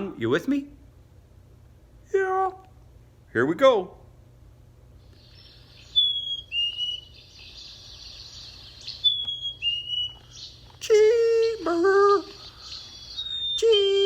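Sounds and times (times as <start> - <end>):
faint bird chirping: 5.0 - 14.0
chickadee two-note whistled song: 5.8 - 7.3, 8.8 - 14.0.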